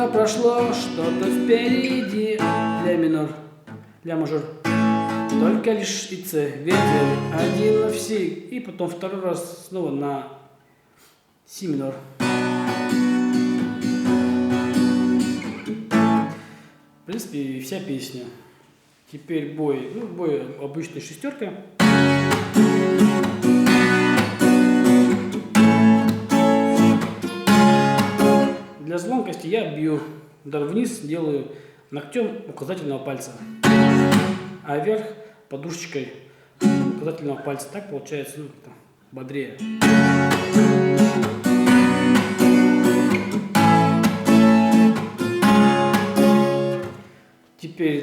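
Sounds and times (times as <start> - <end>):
guitar strumming: 0.0 - 3.0, 4.6 - 5.7, 6.7 - 8.2, 12.2 - 17.1, 21.8 - 28.8, 33.4 - 34.6, 36.6 - 37.1, 39.6 - 47.4.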